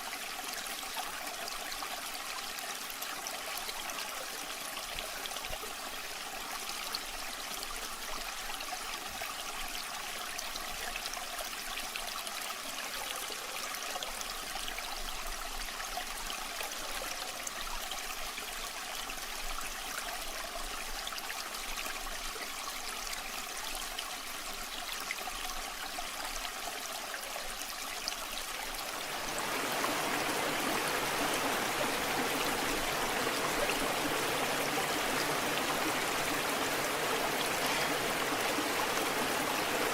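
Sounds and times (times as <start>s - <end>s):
waterfall rushing and splashing: 28.7s - 39.9s.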